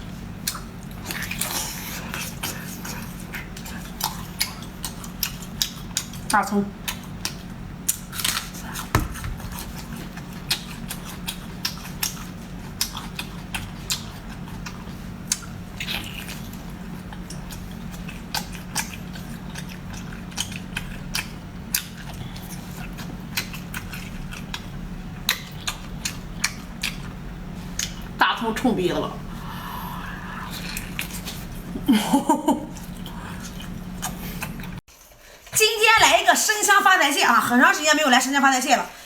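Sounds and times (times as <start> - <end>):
crunching and chewing scallion: 0.0 - 28.2, 30.2 - 31.8
steady low hum: 0.0 - 35.2.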